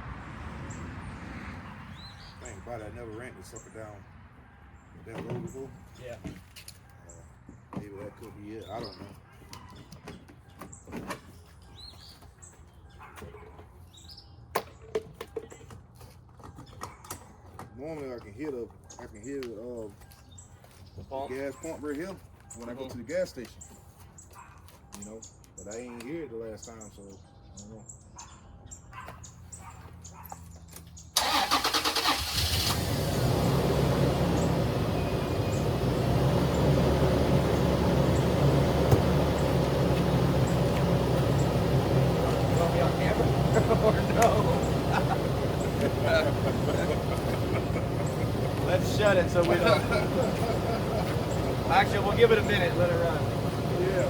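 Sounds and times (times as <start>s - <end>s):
birds chirping: 0.0s - 54.0s
engine starter cranking: 31.2s - 35.0s
engine idling: 31.2s - 54.0s.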